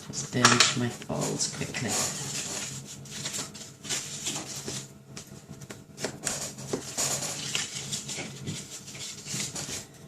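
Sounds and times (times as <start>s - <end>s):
papery rubbing strokes: 1.9s - 4.9s, 6.6s - 9.9s.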